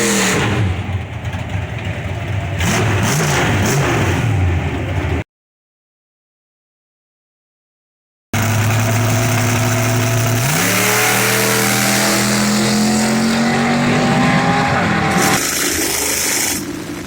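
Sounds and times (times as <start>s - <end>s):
race car engine revving: 0.0s - 1.6s, 2.2s - 4.6s, 8.4s - 17.0s.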